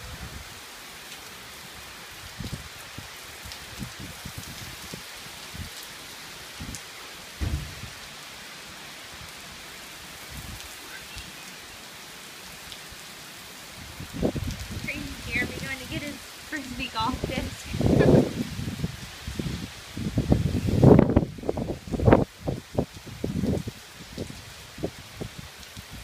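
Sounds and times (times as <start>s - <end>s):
heavy rain pouring: 0.0s - 26.0s
low thumps of gusting wind: 2.1s - 5.8s, 7.4s - 8.1s, 13.7s - 26.0s.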